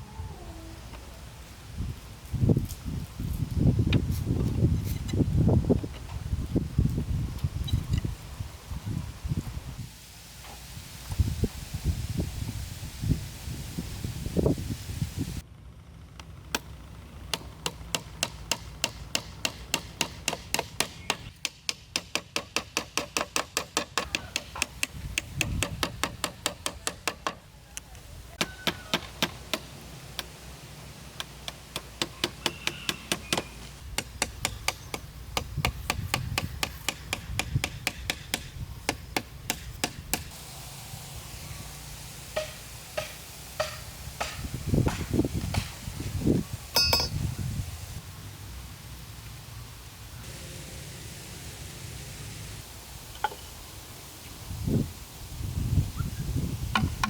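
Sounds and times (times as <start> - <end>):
hammer striking bamboo: 17.3 - 27.4, 28.4 - 30.3, 31.2 - 40.3, 42.4 - 45.8, 46.8 - 47.2, 56.7 - 57.0.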